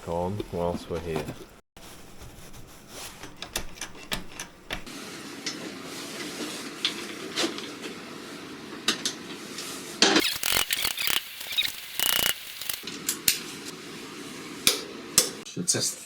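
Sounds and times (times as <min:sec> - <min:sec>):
tools and metal parts clicking: 0:10.2 - 0:12.8.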